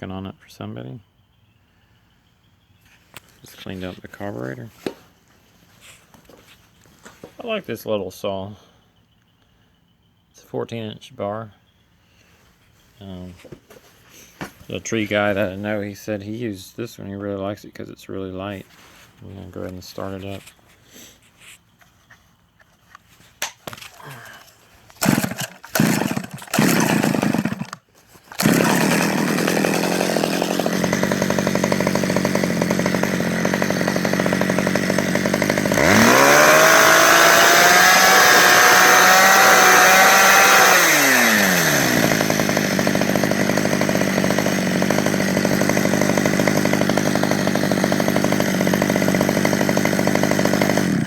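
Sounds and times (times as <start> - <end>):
chainsaw starting and idling: 22.9 - 51.0
chainsaw revving: 24.0 - 51.0.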